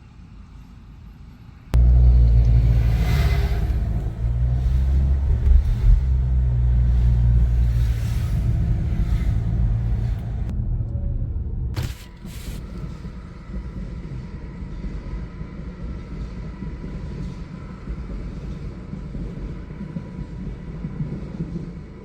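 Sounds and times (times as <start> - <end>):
car road and engine rumble: 0.1 - 14.1.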